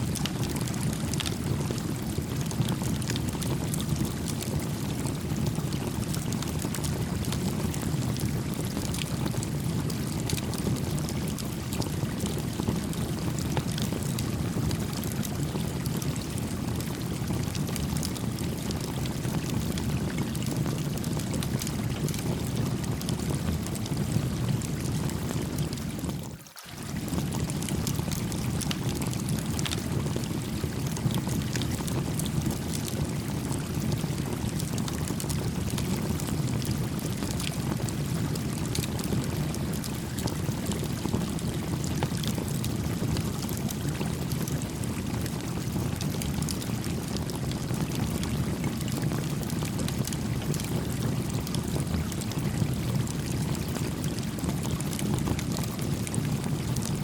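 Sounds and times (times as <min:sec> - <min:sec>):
gently flowing stream: 0:24.7 - 0:34.6.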